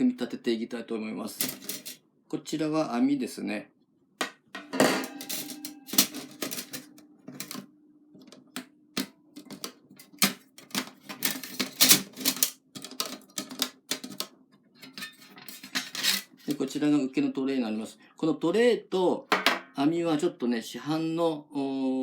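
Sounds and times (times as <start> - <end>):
metal clanking on metal: 4.6 - 7.6, 14.8 - 16.4.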